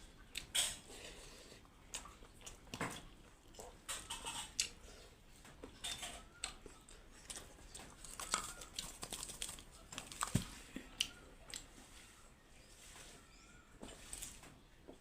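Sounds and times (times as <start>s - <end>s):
wet chewing smacks: 1.6s - 4.8s, 6.4s - 11.7s.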